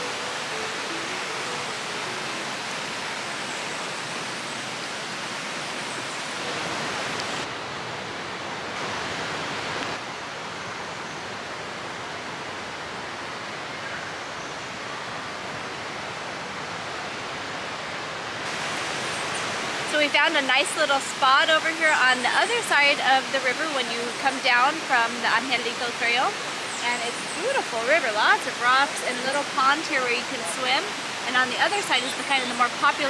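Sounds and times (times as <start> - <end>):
river rushing over rocks: 0.0 - 7.9, 18.4 - 33.0.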